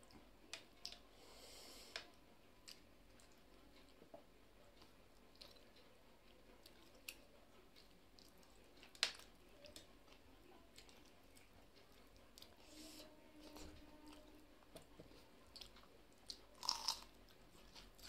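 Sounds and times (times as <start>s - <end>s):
faint chewing: 0.0s - 18.0s.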